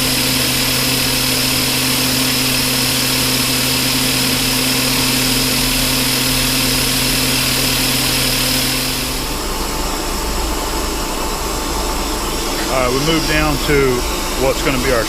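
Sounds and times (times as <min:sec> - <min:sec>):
hiss of mist coolant: 0:00.0 - 0:09.7
metal lathe humming: 0:00.0 - 0:15.0.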